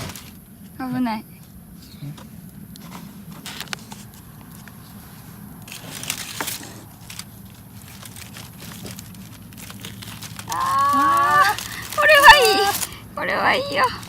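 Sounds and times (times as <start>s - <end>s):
aluminium foil crinkling: 0.0s - 0.6s, 2.5s - 14.0s.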